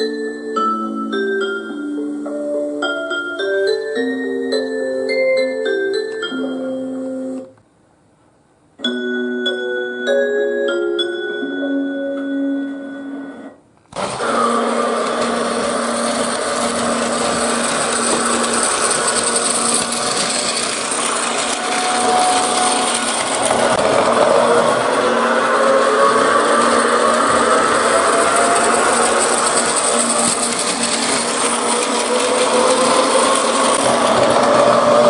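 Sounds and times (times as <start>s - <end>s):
piano music: 0.0s - 7.6s, 8.8s - 13.6s, 15.3s - 35.0s
toy train motor whirring: 13.9s - 35.0s.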